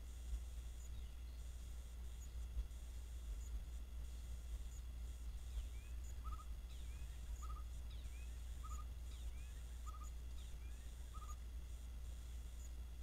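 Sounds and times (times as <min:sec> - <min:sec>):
steady low rumble: 0:00.0 - 0:13.0
small animal triple chirp: 0:11.1 - 0:11.4.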